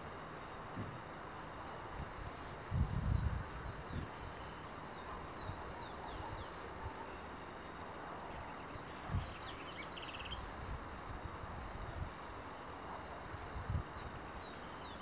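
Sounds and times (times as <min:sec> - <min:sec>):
outdoor hiss: 0:00.0 - 0:05.7
small birds chirping: 0:02.3 - 0:10.5.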